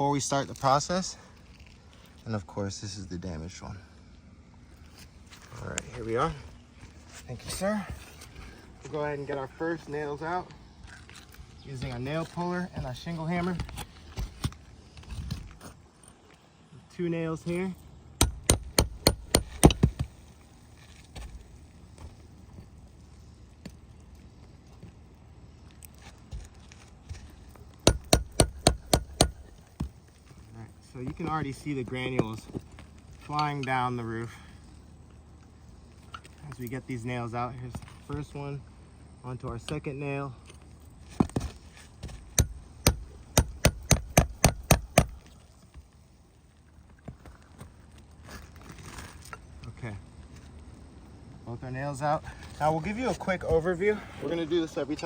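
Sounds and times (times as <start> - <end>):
hammer striking metal: 18.2 - 19.9, 27.9 - 29.5, 42.4 - 45.2.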